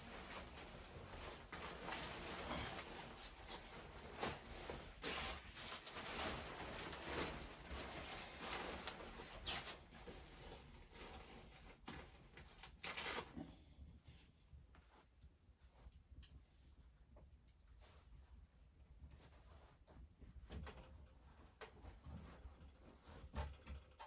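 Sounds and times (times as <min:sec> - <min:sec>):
rustling and handling noises: 0:00.0 - 0:13.4.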